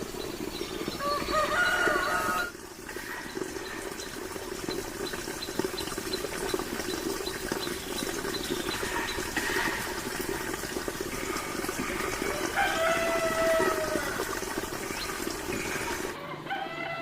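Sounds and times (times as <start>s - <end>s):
water running: 0.0s - 16.2s.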